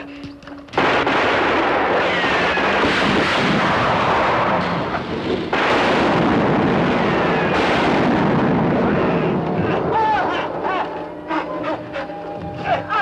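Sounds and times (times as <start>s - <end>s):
explosion blast and rumble: 0.8s - 11.0s.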